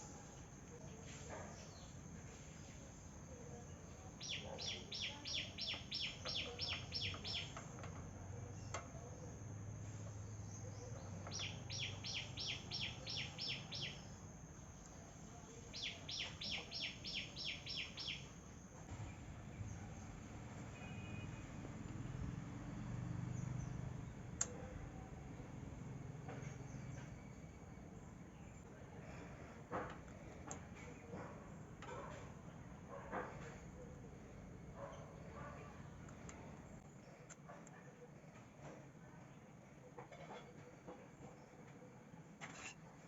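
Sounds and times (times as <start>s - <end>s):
bird chirping: 4.0s - 7.8s, 10.2s - 18.5s.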